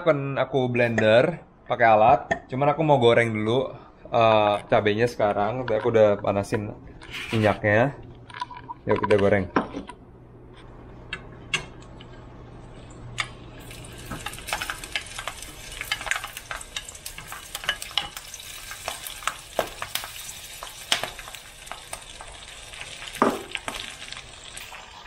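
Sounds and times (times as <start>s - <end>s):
chilies frying in hot oil: 12.7s - 25.0s.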